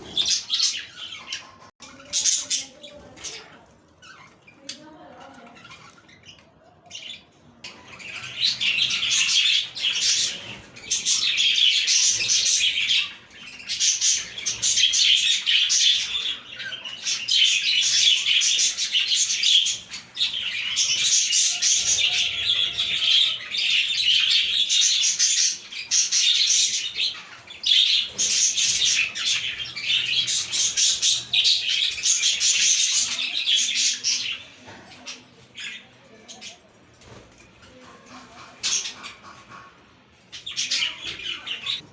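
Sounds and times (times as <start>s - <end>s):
budgerigars warbling and chattering: 0.0s - 41.9s.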